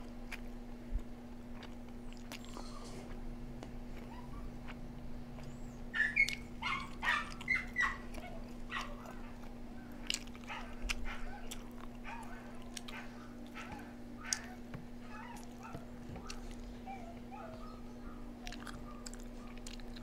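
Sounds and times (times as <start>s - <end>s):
small dog whining and yipping: 4.0s - 4.7s, 5.4s - 9.4s, 10.4s - 19.6s.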